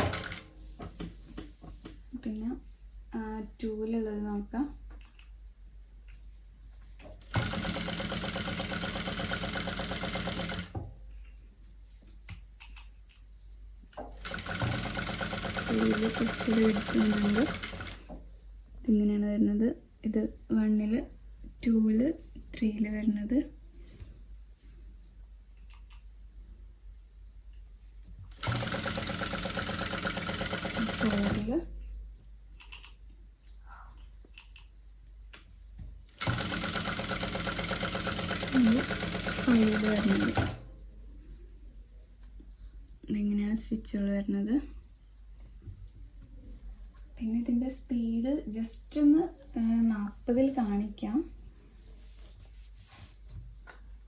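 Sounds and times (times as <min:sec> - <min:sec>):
sewing machine stitching: 0:00.0 - 0:00.5, 0:07.3 - 0:10.8, 0:14.2 - 0:18.1, 0:28.3 - 0:31.5, 0:36.2 - 0:40.6.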